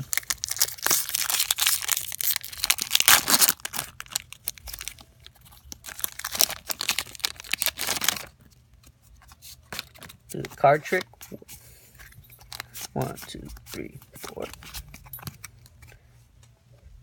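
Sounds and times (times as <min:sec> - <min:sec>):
foil pack tearing and crinkling: 0:00.0 - 0:08.4.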